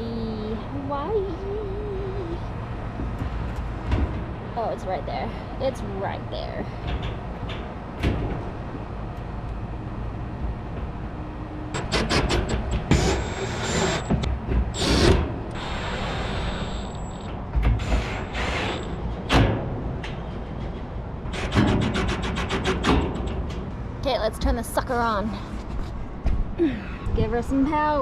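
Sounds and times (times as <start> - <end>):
steady low hum: 0.0 - 28.0
metal panel knocks and clunks: 6.9 - 8.6.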